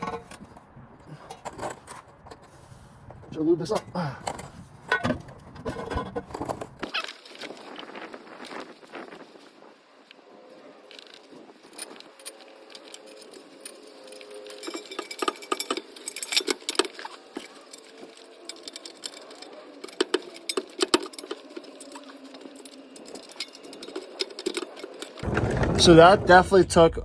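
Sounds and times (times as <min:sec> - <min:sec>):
metal clinking and rattling: 0:10.9 - 0:26.5.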